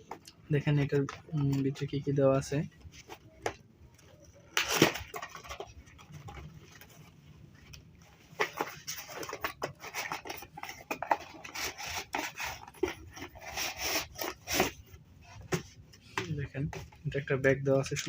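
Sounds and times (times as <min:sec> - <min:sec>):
packaging rustling and scraping: 0:02.8 - 0:16.2.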